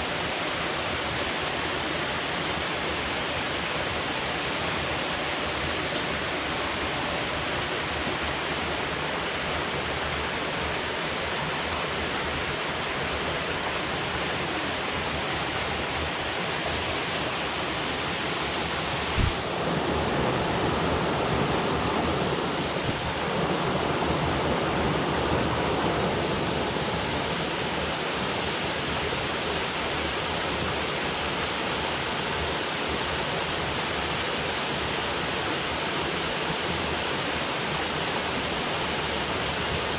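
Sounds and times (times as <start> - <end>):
river flowing: 0.0 - 39.9
water falling from a dam: 0.0 - 39.9
low thump: 19.2 - 19.4.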